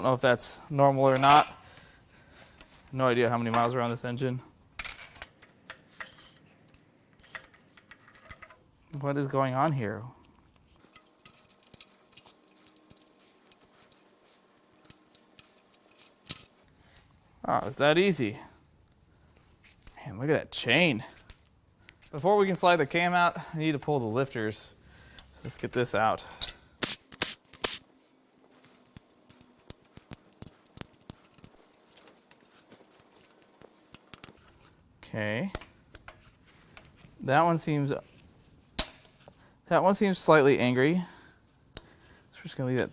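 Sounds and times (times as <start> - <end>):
metal clicks and tool taps: 4.8 - 8.6, 10.8 - 14.0, 28.6 - 34.4.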